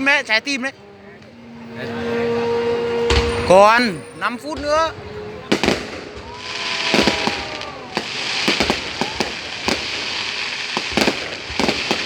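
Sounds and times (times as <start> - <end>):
continuous hiss: 0.0 - 12.0
firework shells bursting: 4.5 - 12.0.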